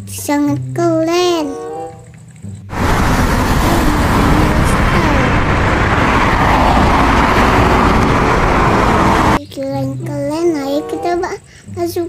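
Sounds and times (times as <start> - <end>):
steady rush of noise: 2.7 - 9.4.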